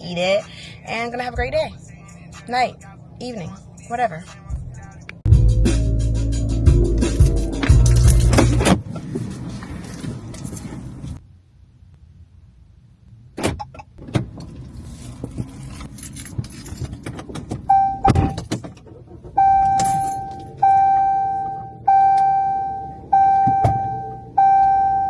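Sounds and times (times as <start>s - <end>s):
keys jangling: 15.5s - 17.3s
car warning chime dinging: 17.7s - 18.4s, 19.4s - 25.0s.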